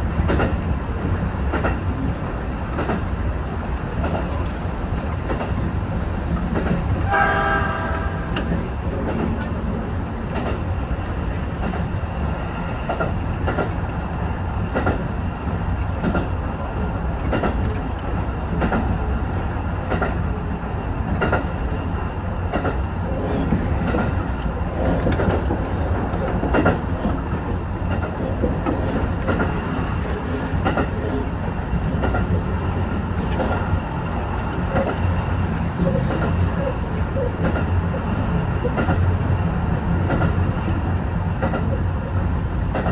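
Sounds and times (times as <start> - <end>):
railcar rumbling: 0.0 - 42.9
train horn blast: 7.0 - 8.8.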